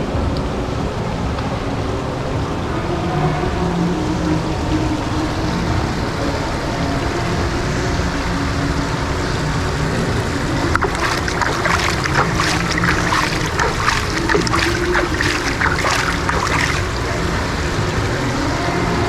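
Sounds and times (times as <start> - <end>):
fountain water splashing: 10.4 - 17.6.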